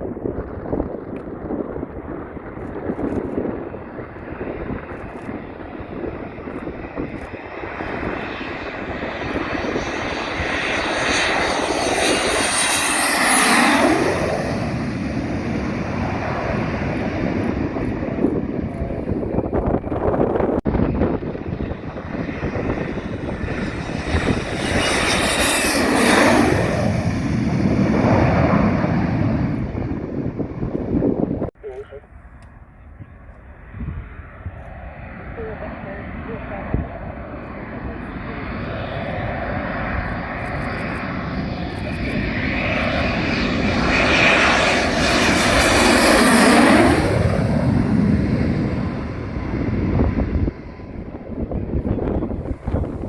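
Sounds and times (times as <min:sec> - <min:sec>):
jet passing by: 0:00.0 - 0:53.0.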